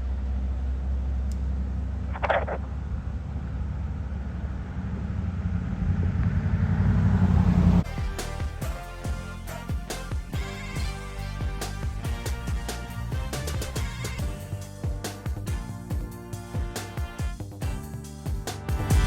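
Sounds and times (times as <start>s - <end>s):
truck diesel engine running: 0.0s - 19.0s
music: 7.8s - 19.0s.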